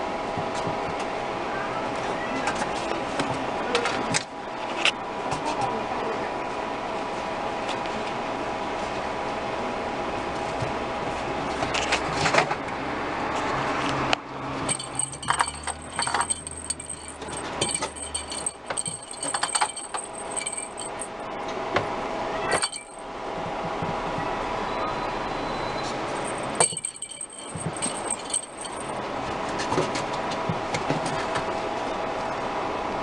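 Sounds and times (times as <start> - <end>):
metallic jingling and clinking: 14.7 - 21.3, 22.5 - 23.0, 26.2 - 29.0.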